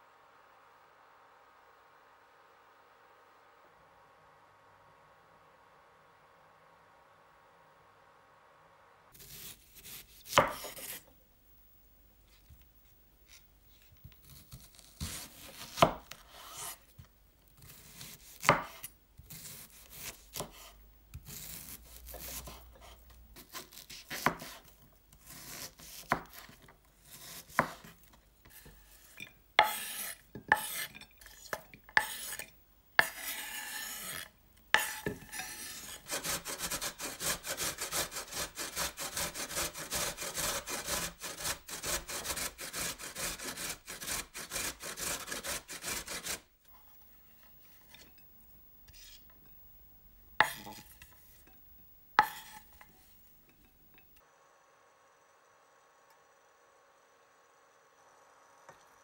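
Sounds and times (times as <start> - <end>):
knocks and scraping strokes: 25.6 - 48.2, 48.8 - 49.5, 50.4 - 53.8.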